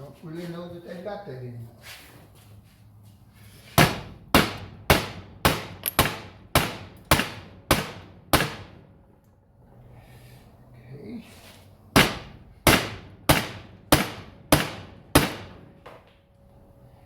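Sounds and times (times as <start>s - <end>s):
hammer striking metal bumper: 3.8s - 8.9s, 11.9s - 15.8s.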